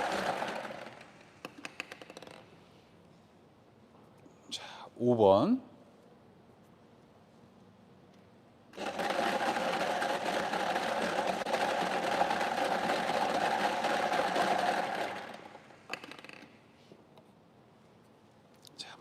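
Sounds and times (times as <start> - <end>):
lottery machine rattling balls: 0.0 - 2.4, 8.8 - 16.6.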